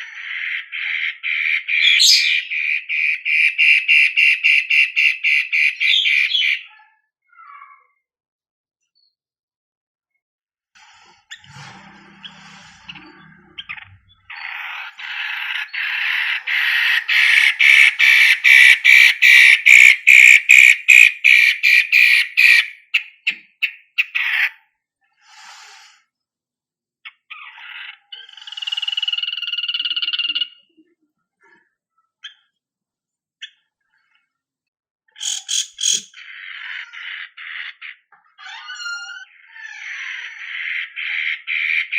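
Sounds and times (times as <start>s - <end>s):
bird singing harsh rapid notes: 0.0s - 7.8s, 12.2s - 24.6s, 27.1s - 30.7s, 35.1s - 41.9s.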